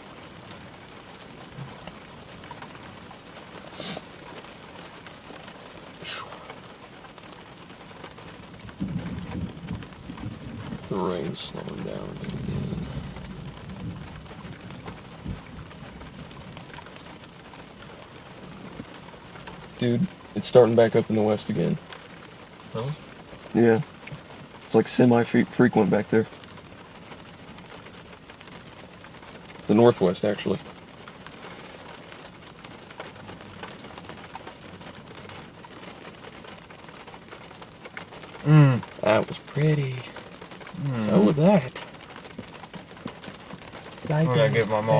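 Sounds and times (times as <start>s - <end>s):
rain falling: 0.0s - 44.9s
drops ticking on a surface: 26.2s - 44.8s.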